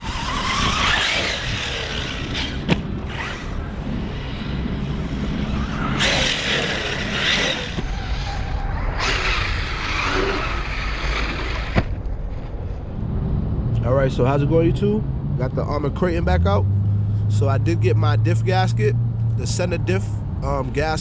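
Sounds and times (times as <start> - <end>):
electric motor whine: 0.0 - 7.9
tyres and wind rushing: 0.0 - 21.0.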